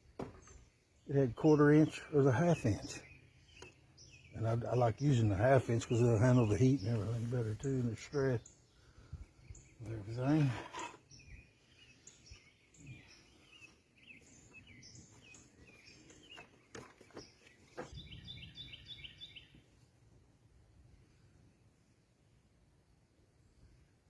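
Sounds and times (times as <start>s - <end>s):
faint birds chirping: 0.0s - 24.0s
bird trill: 7.6s - 19.6s.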